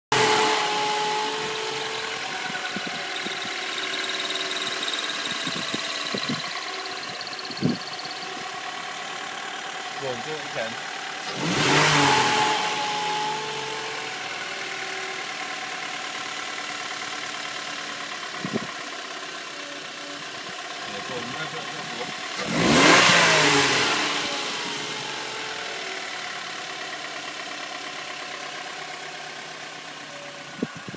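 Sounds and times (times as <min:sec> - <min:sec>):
car engine idling: 0:00.1 - 0:30.9
high-pitched clutch squeak: 0:00.2 - 0:08.7.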